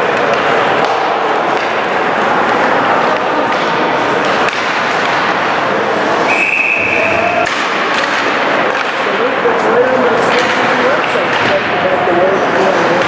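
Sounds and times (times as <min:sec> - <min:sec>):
crowd and rink noise: 0:00.0 - 0:13.0.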